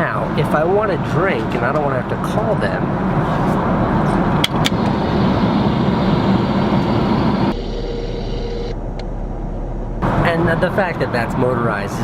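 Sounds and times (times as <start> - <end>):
airliner cabin roar: 2.7 - 11.0.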